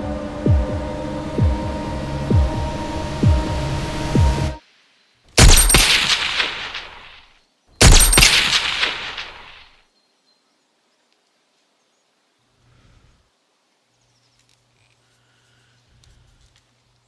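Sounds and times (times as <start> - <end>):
low throbbing drone: 0.0 - 4.6
gunfire bursts with echo: 5.4 - 7.1, 7.8 - 9.7.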